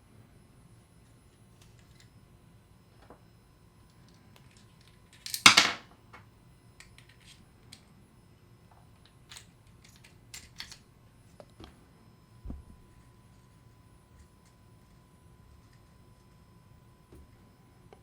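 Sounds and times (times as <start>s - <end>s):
metal parts clattering: 5.2s - 5.8s.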